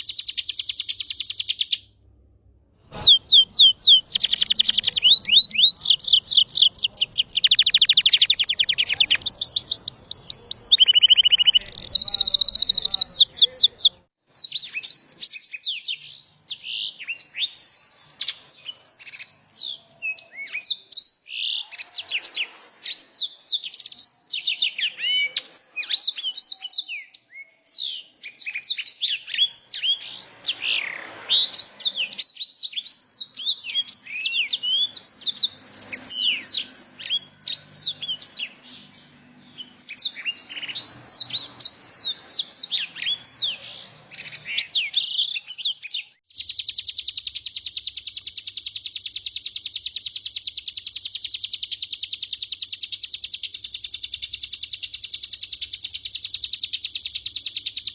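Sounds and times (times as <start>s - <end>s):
songbird warbling: 2.9s - 14.0s, 28.4s - 57.9s.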